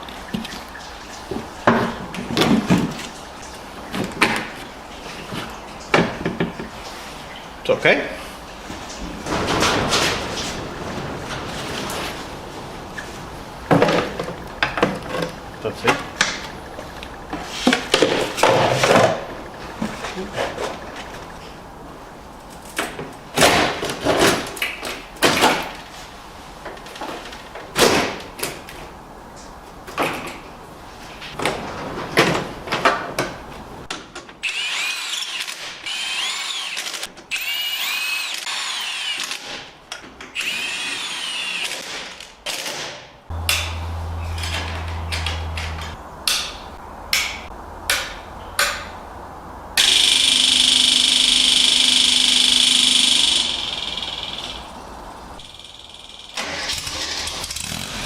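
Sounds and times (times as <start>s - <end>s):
power drill whining: 34.4s - 39.5s, 40.4s - 41.8s, 43.3s - 46.0s, 49.8s - 54.5s
loud steady mechanical noise: 43.3s - 46.2s, 49.6s - 58.0s.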